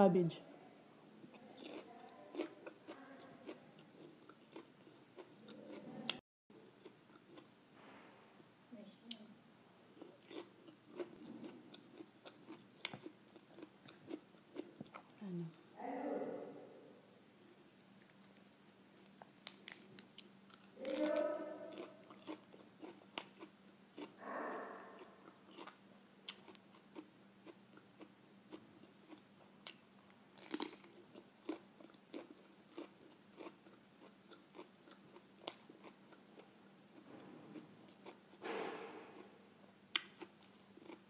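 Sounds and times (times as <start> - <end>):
person crunching cabbage: 1.3 - 5.9, 18.0 - 24.2, 30.4 - 36.2.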